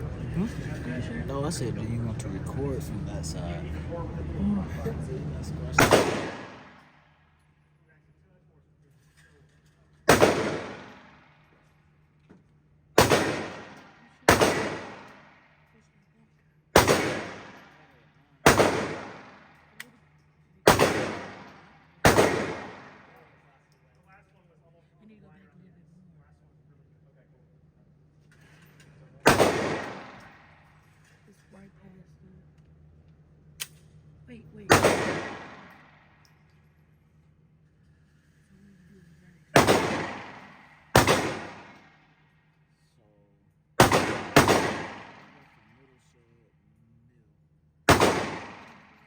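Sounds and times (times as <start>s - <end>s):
gunshots with echo: 5.7s - 6.9s, 10.1s - 11.3s, 13.0s - 15.3s, 16.8s - 17.8s, 18.4s - 19.6s, 20.7s - 23.2s, 29.2s - 30.6s, 34.7s - 36.1s, 39.6s - 42.0s, 43.8s - 45.6s, 47.9s - 49.0s
small click: 33.6s - 33.9s.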